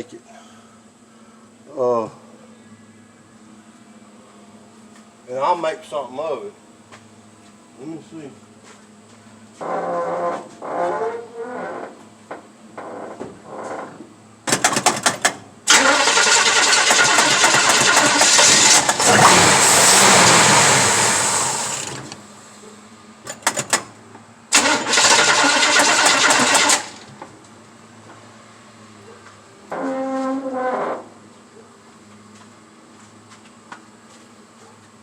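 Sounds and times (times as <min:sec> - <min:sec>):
car engine cranking and starting: 0:14.5 - 0:22.2, 0:24.5 - 0:27.2.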